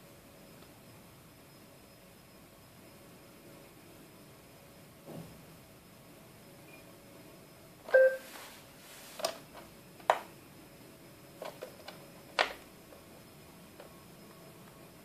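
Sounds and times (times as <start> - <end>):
brief ringing tone: 7.9 - 8.4.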